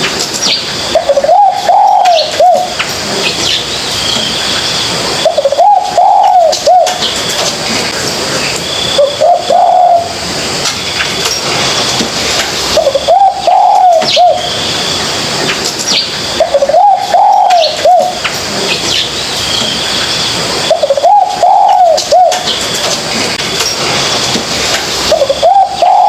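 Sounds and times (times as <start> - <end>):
small birds chirping: 0.4 - 7.6, 12.6 - 15.1, 15.8 - 22.9
dove cooing: 0.9 - 2.8, 5.2 - 7.2, 9.0 - 10.2, 12.7 - 14.5, 16.4 - 18.2, 20.6 - 22.6, 25.1 - 26.0.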